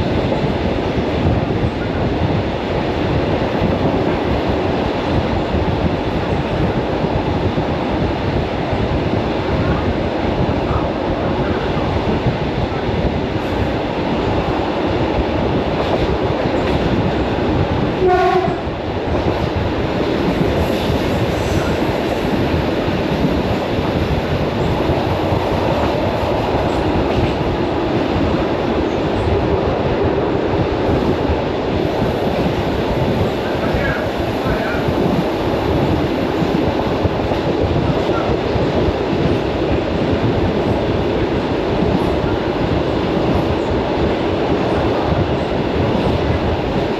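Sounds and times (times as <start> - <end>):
electric train rumble and rattle: 0.0 - 46.9
train horn blast: 18.0 - 18.7.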